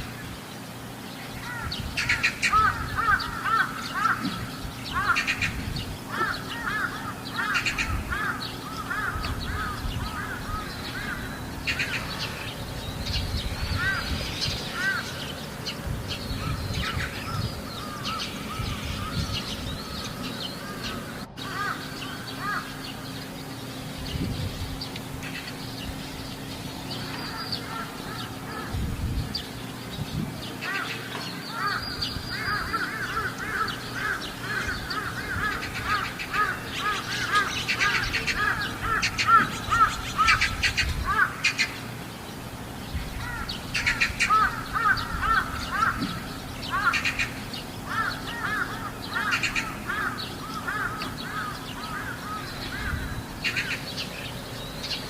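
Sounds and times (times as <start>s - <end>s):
steady low hum: 0.0s - 55.0s
crows cawing: 1.4s - 12.5s, 13.6s - 15.3s, 16.3s - 23.0s, 27.0s - 28.9s, 30.6s - 41.8s, 43.2s - 54.0s.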